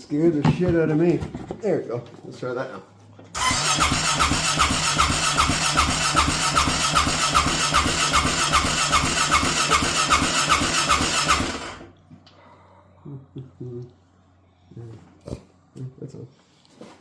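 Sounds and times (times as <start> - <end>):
engine cranking on starter: 3.3 - 12.0.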